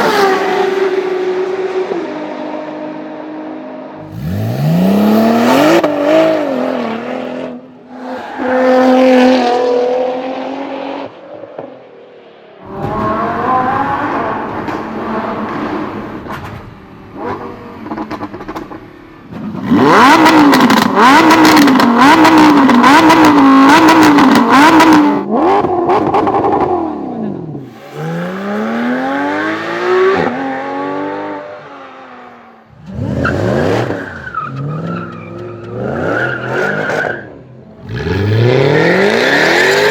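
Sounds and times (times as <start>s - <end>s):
sports car engines revving: 0.0s - 11.2s, 12.6s - 39.9s
cars passing: 0.0s - 39.9s
engine popping and crackling: 17.4s - 23.2s.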